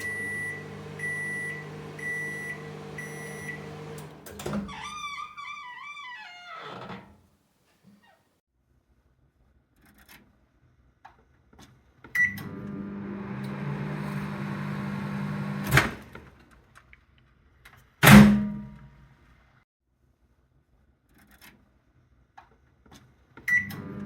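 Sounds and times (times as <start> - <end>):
microwave beep: 0.0 - 4.2, 23.5 - 24.0
microwave click: 0.0 - 4.7
microwave oven humming: 0.0 - 5.0, 12.3 - 16.0, 23.6 - 24.0.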